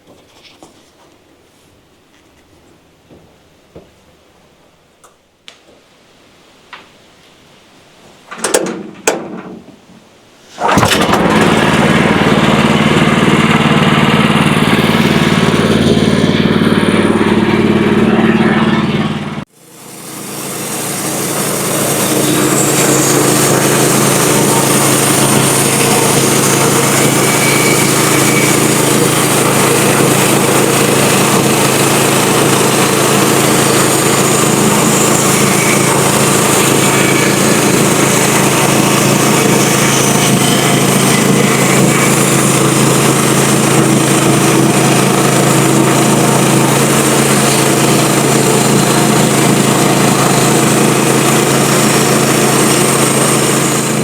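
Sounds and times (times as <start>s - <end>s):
sawmill engine hum: 8.1s - 54.0s
saw blade cutting log: 10.5s - 18.4s, 19.7s - 54.0s.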